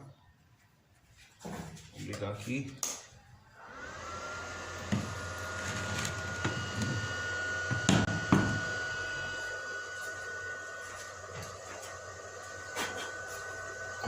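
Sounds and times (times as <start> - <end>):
welder cooling fan humming: 3.4 - 14.0
thin high whine: 4.9 - 14.0.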